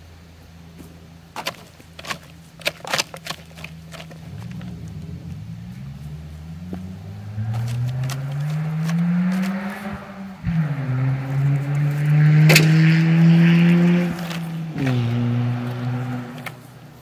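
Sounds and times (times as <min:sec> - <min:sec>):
car engine humming and revving: 0:00.0 - 0:17.0
plastic rake scraping soil: 0:01.4 - 0:05.0, 0:07.4 - 0:10.0, 0:11.7 - 0:16.8.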